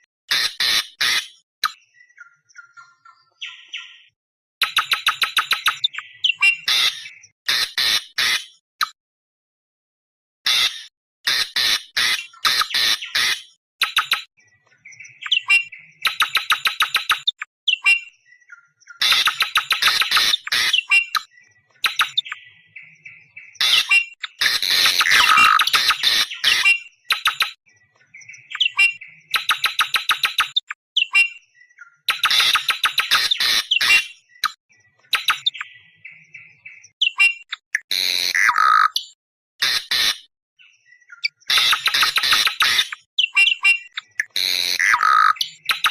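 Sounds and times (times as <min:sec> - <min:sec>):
bird harsh screeching calls: 0:00.3 - 0:01.4, 0:05.8 - 0:08.6, 0:10.5 - 0:13.5, 0:19.0 - 0:22.4, 0:23.6 - 0:27.4, 0:32.1 - 0:34.3, 0:37.0 - 0:40.3, 0:41.2 - 0:45.9.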